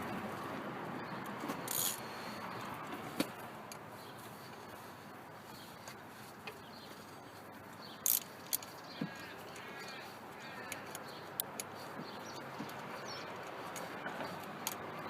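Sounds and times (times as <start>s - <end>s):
bird calling: 4.0s - 15.0s
sharp clicks: 7.9s - 15.0s.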